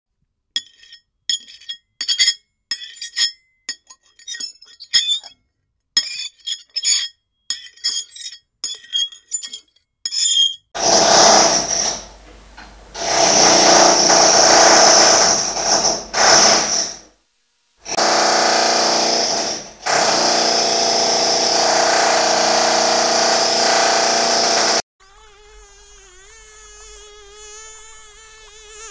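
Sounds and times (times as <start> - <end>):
fork scraping on a plate: 0.6 - 5.3, 6.0 - 10.7
rotary hammer drilling with whine: 10.4 - 17.1, 17.9 - 24.8.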